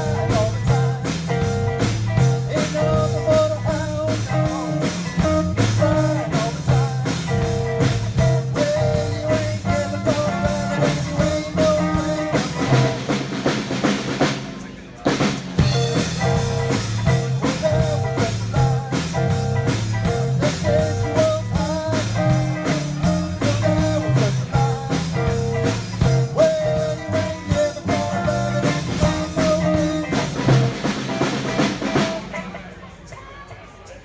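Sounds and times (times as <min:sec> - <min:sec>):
melodic lead guitar line: 0:00.0 - 0:13.6, 0:15.6 - 0:32.9
steady drum beat: 0:00.0 - 0:32.5
bass guitar: 0:00.0 - 0:32.9.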